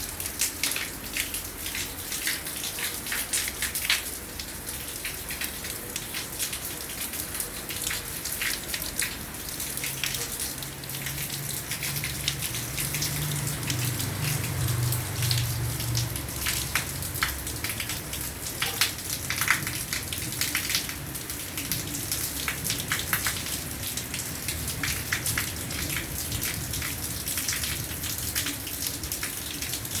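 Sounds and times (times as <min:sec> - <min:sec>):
raindrops tapping: 0:00.0 - 0:30.0
rain hiss: 0:07.5 - 0:30.0.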